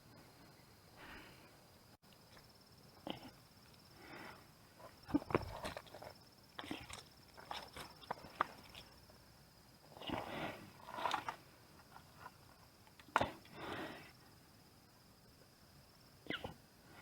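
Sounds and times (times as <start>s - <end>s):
rustling: 4.8s - 9.2s.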